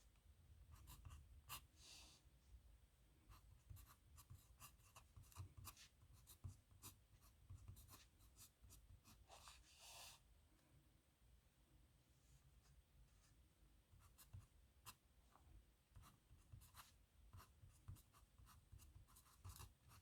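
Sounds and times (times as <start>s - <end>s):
pen scratching on paper: 3.7s - 10.2s, 16.0s - 20.0s.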